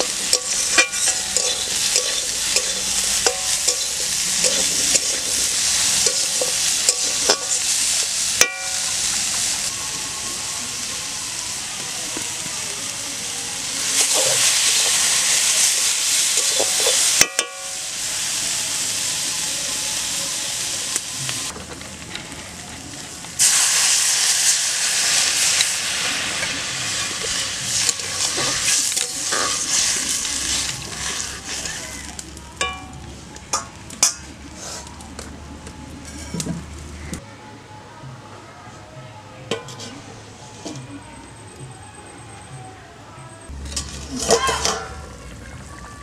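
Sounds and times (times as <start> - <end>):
food sizzling in a pan: 0.0 - 21.5, 22.2 - 34.8
water sizzling in hot pan: 0.0 - 32.7.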